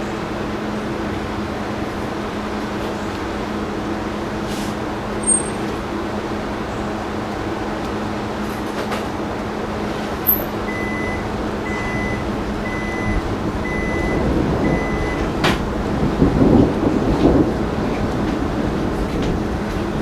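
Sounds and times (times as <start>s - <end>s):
steady noisy background: 0.0s - 20.0s
vehicle reversing alarm beeping: 10.2s - 16.4s.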